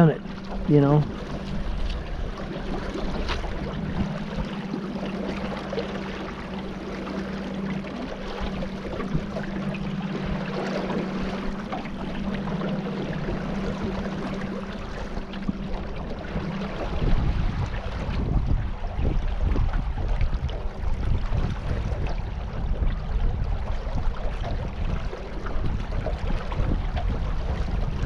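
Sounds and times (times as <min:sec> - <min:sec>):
boat motor hum: 0:00.0 - 0:28.0
water rushing: 0:00.0 - 0:28.0
wind noise: 0:15.9 - 0:28.0.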